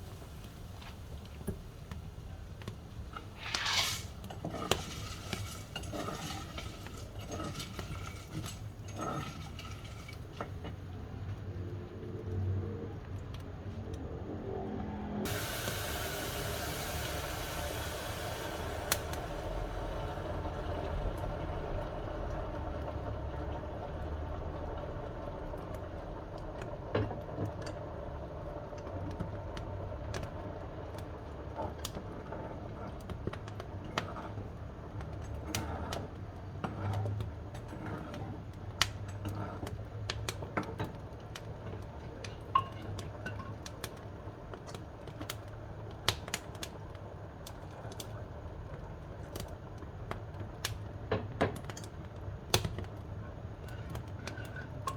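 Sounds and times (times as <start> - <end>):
wood fire crackling: 0.0 - 14.0, 15.3 - 54.9
low steady rumble: 0.0 - 32.8.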